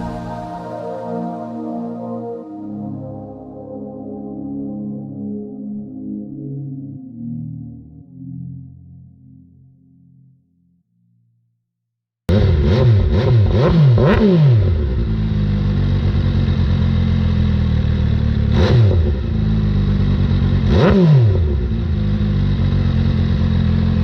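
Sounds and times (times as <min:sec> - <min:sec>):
motorcycle engine revving and idling: 0:12.3 - 0:24.0.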